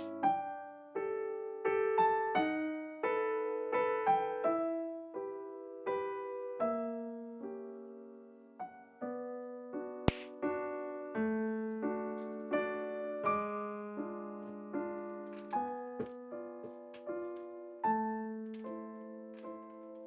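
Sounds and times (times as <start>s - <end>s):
solo piano music: 0.0s - 20.0s
sharp click: 10.1s - 10.3s.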